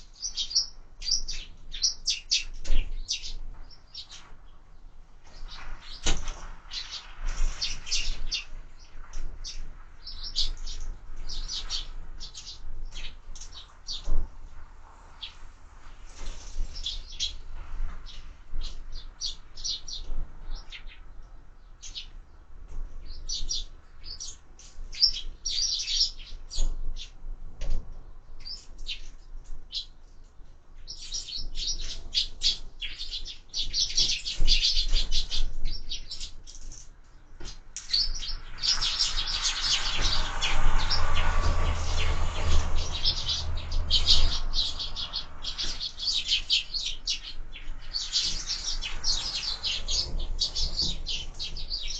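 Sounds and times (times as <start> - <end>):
sparrows chirping: 0.0 - 14.2, 15.1 - 15.4, 16.2 - 27.2, 28.1 - 51.9
broad rushing noise: 38.2 - 47.1.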